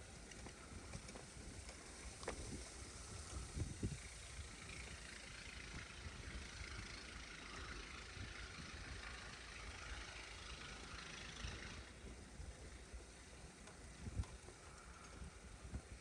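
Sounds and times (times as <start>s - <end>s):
storm wind on microphone: 2.4s - 4.1s.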